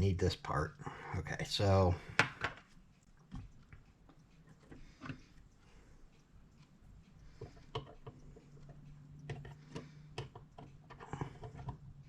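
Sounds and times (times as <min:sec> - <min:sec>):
low steady hum: 0:00.0 - 0:12.0
small clock parts clicking: 0:02.5 - 0:12.0.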